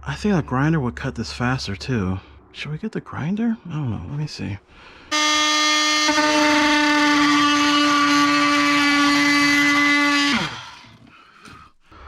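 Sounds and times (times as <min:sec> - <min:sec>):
power tool spinning down: 0:05.1 - 0:11.1
power tool whining: 0:05.1 - 0:11.6.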